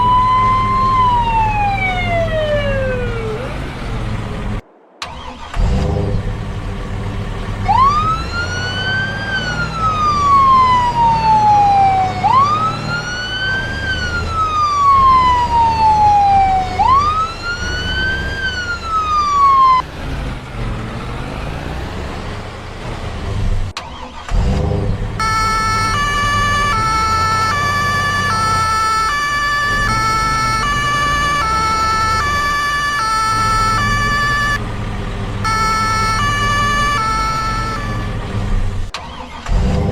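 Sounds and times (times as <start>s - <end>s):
wailing siren: 0.0s - 3.8s, 7.6s - 19.8s, 25.2s - 34.7s, 35.4s - 38.3s.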